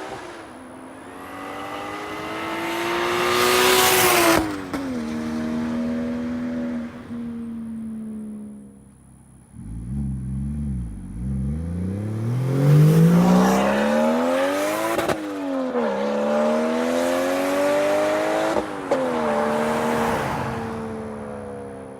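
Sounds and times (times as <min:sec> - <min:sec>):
car engine accelerating hard: 0:09.5 - 0:20.8.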